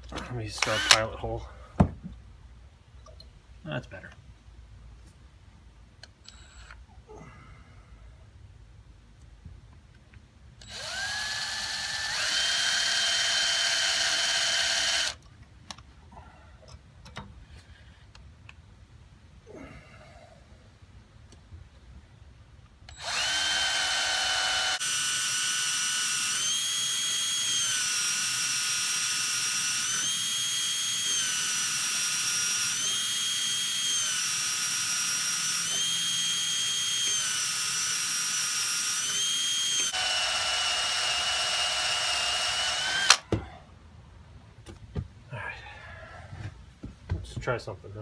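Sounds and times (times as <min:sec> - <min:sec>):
electric drill whining: 0:00.5 - 0:01.1, 0:10.6 - 0:15.2, 0:22.9 - 0:43.3.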